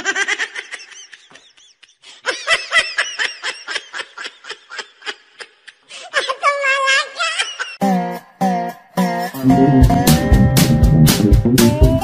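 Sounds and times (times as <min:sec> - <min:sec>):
high-pitched laughter: 0:00.0 - 0:07.9.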